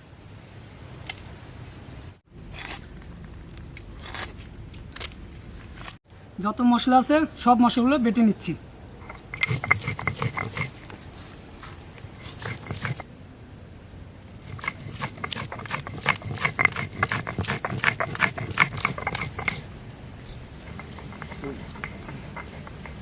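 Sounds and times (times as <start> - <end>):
grinding stone scraping and knocking: 9.0 - 11.0, 12.0 - 13.1, 14.4 - 19.7, 20.4 - 23.0.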